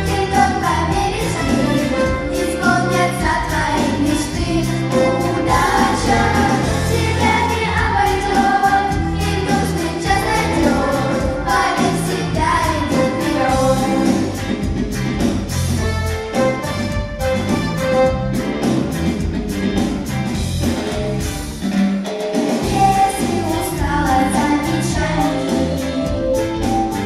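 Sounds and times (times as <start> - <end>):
instrumental accompaniment with beat: 0.0 - 27.0.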